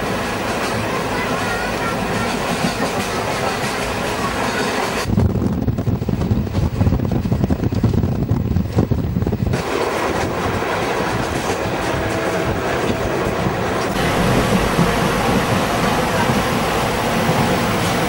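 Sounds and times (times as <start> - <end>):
train rumble: 0.0 - 18.0
smooth hissy rush: 13.6 - 18.0.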